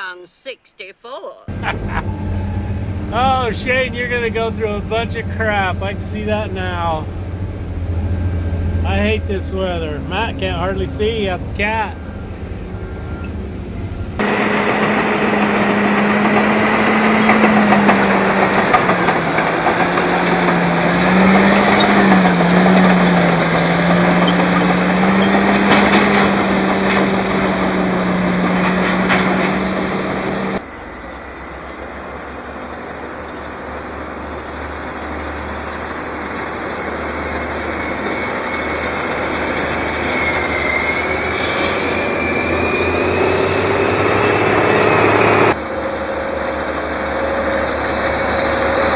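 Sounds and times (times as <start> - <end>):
engine running: 1.5 - 32.7, 41.4 - 48.9
earthmoving machinery engines working: 1.5 - 48.9.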